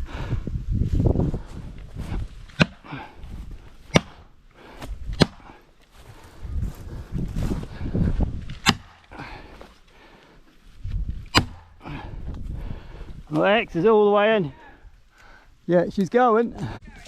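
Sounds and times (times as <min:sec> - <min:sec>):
axe striking wedge in tree: 0:02.5 - 0:02.9, 0:03.9 - 0:04.3, 0:05.1 - 0:05.5, 0:08.5 - 0:09.1, 0:11.2 - 0:11.8.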